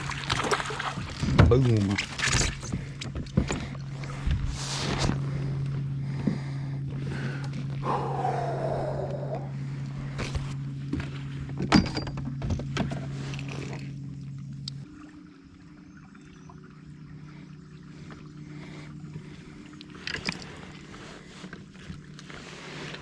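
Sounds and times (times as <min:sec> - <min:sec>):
steady low hum: 0:00.0 - 0:23.0
knocks and thuds of gear: 0:10.2 - 0:13.1.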